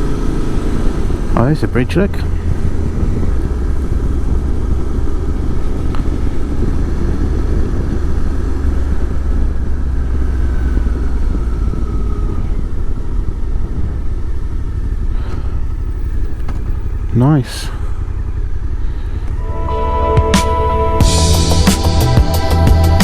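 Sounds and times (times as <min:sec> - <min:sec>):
motorcycle engine and road rumble: 0:00.0 - 0:23.0
faint whine: 0:09.7 - 0:23.0.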